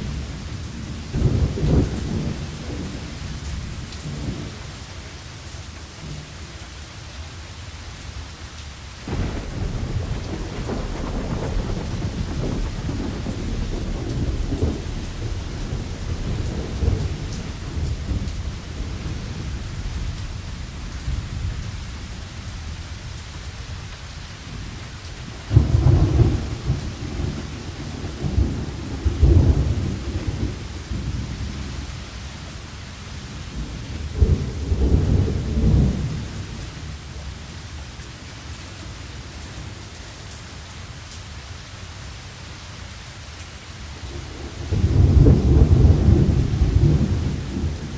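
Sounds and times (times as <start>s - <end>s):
deep rolling thunder: 0.0s - 4.6s, 9.1s - 23.2s, 24.5s - 31.9s, 33.4s - 36.9s, 44.0s - 47.9s
steady rain hiss: 0.0s - 47.9s.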